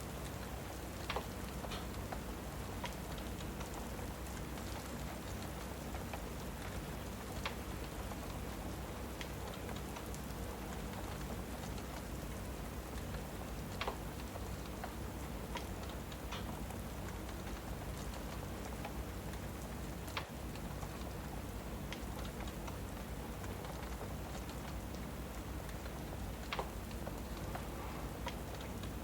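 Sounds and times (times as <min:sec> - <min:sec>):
fire crackling and popping: 0:00.0 - 0:29.0
rain hiss: 0:00.0 - 0:29.0.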